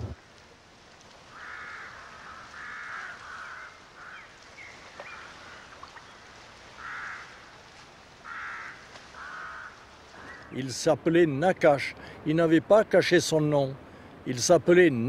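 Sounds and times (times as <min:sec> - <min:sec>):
harsh bird calls: 0:01.3 - 0:07.5, 0:08.2 - 0:10.7.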